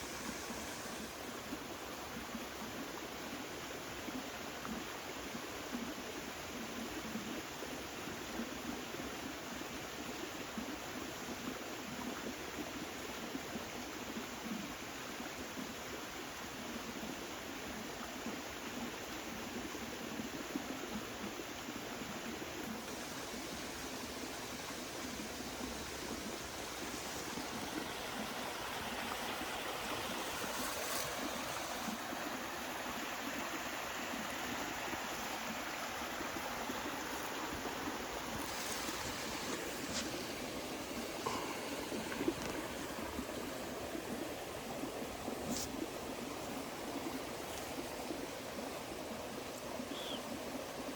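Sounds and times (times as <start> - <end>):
stream flowing: 0.0 - 50.9.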